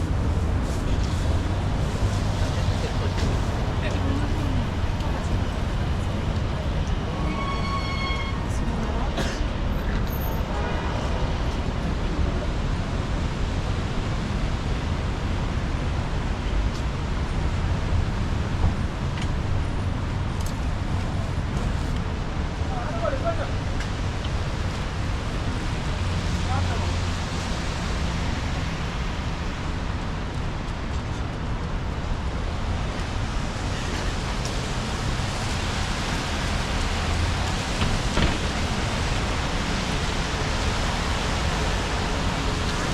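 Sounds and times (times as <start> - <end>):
low rumble of passing vehicles: 0.0 - 7.6, 11.1 - 42.9
rain hissing: 35.0 - 42.9.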